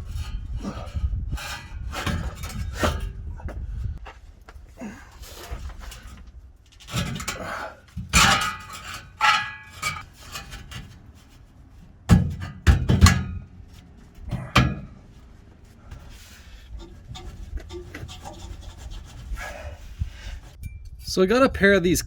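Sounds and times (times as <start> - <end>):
metal pipes clanking: 0.0 - 3.2, 5.3 - 15.2, 15.9 - 18.9.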